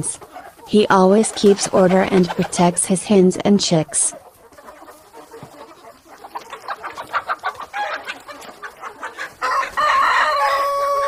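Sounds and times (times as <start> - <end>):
chickens clucking: 0.0 - 11.0
rooster crowing: 9.4 - 11.0.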